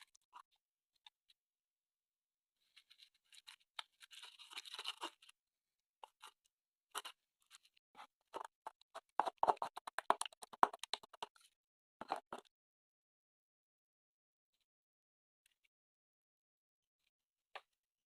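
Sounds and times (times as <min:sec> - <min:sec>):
scratchy rustle: 0:02.7 - 0:05.3
crisp crackling and clicking: 0:08.4 - 0:12.4.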